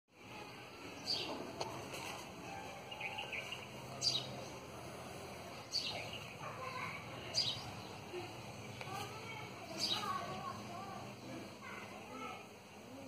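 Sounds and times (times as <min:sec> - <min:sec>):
steady background noise: 0:00.1 - 0:13.0
bird chirping: 0:02.4 - 0:12.5.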